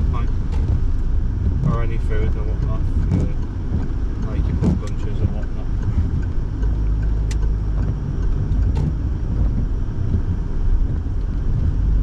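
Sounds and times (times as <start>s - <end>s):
engine and tyre rumble: 0.0s - 12.0s.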